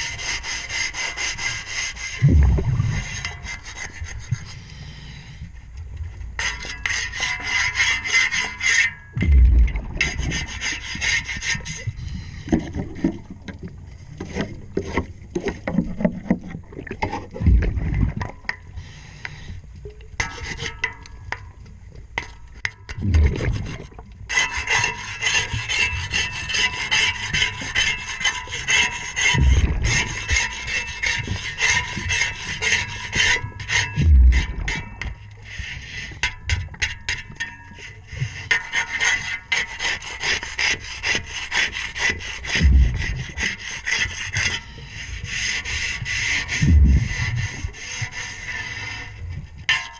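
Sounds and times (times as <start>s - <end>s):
underwater scraping of propeller: 0.0s - 19.6s, 22.9s - 49.9s
short low rumbles: 2.2s - 3.2s, 9.2s - 10.0s, 17.4s - 18.2s, 23.0s - 23.8s, 29.4s - 30.2s, 34.0s - 34.8s, 42.6s - 43.3s, 46.6s - 47.4s.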